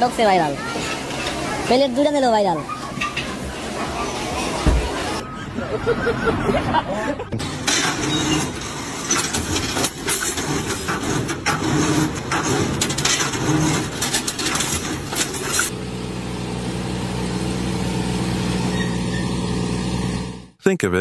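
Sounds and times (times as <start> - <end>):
rapid clattering and knocking: 2.8 - 5.2, 7.3 - 15.7.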